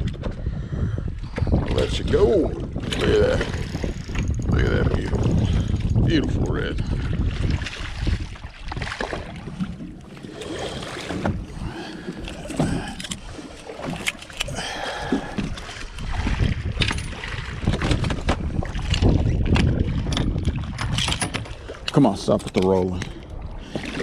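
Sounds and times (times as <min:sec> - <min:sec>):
wind buffeting microphone: 0:00.0 - 0:24.0
water sloshing: 0:01.3 - 0:24.0.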